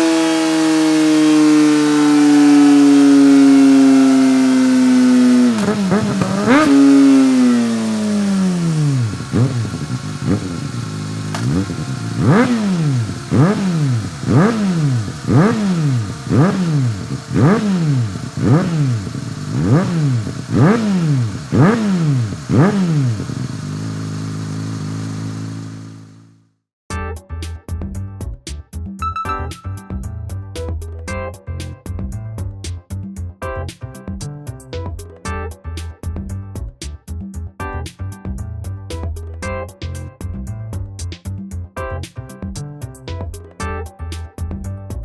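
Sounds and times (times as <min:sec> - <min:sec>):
quick throttle blips: 0:00.0 - 0:26.3
motorcycle engine revving: 0:00.0 - 0:26.4.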